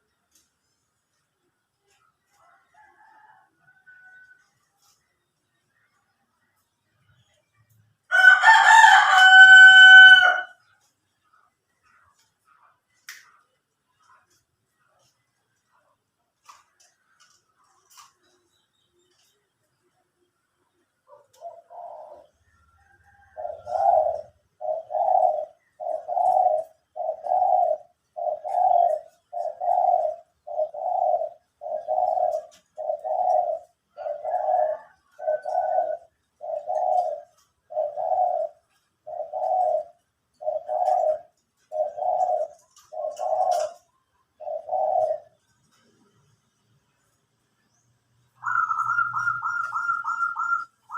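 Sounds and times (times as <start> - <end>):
dove cooing: 8.2 - 13.4, 20.0 - 46.6, 48.2 - 50.9
faint bird chirps: 10.6 - 50.9.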